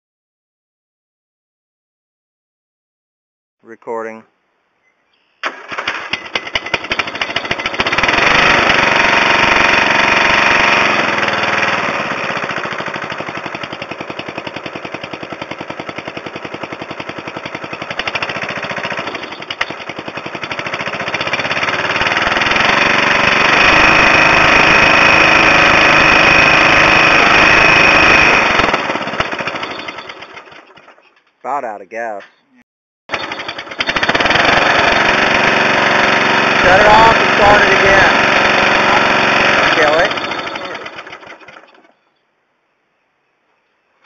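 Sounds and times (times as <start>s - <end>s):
mower engine running: 5.4s - 31.2s, 33.1s - 42.0s.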